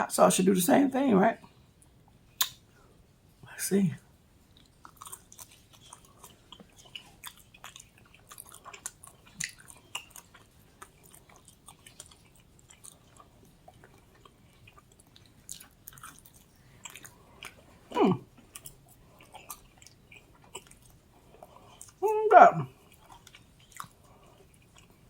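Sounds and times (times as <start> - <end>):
wet mouth clicks: 2.4 - 2.6
chewing and crunching pizza: 4.4 - 22.0, 22.6 - 25.0.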